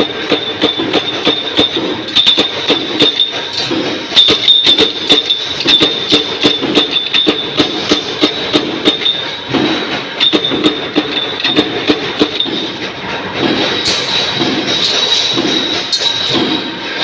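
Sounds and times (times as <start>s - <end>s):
punch press metallic clank: 0.0s - 12.8s
machine whine and rumble: 0.0s - 17.0s.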